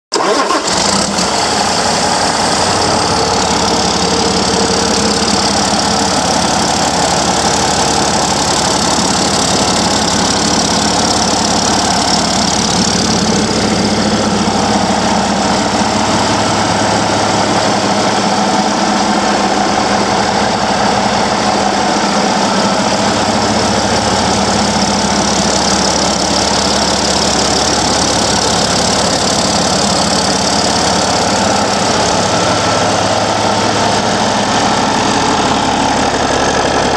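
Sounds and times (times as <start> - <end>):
diesel engine idling: 0.1 - 36.9.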